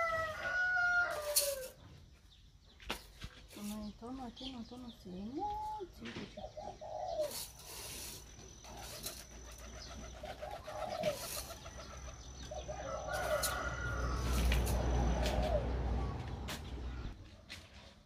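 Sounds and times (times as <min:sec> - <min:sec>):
hands sifting dry rice: 0:01.1 - 0:01.8, 0:07.2 - 0:09.3
bird calling: 0:03.6 - 0:17.2.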